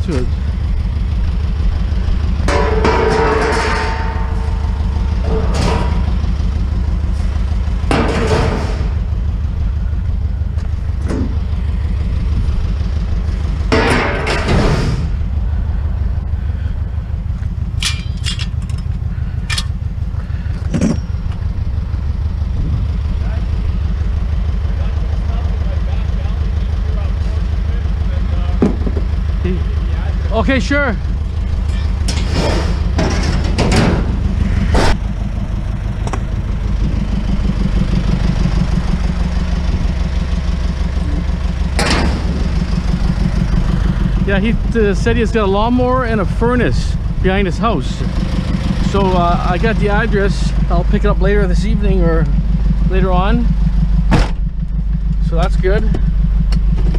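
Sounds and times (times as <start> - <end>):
truck engine idling: 0.0 - 56.9
knocks or clunks: 2.3 - 6.7, 7.3 - 9.1, 10.5 - 11.6, 12.2 - 15.2, 20.5 - 21.5, 41.0 - 56.9
loud clatter: 2.3 - 9.2, 11.0 - 15.2, 31.2 - 35.0, 40.9 - 45.3.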